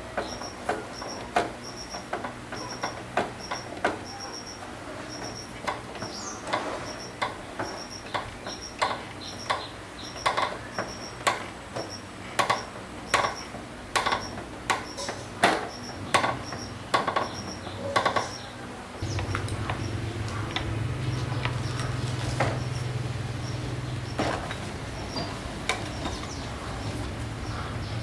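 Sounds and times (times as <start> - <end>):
low motor hum: 19.0 - 28.0.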